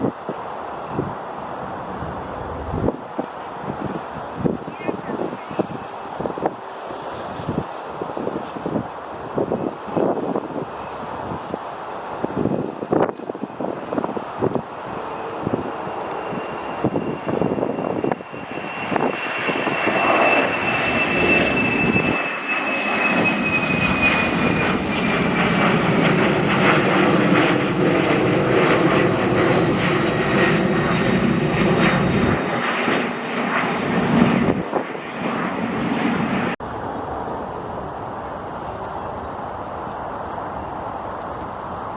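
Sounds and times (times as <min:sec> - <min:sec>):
airliner engine noise: 0:00.0 - 0:41.9
wind buffeting microphone: 0:00.0 - 0:41.9
high engine whine: 0:13.8 - 0:39.3.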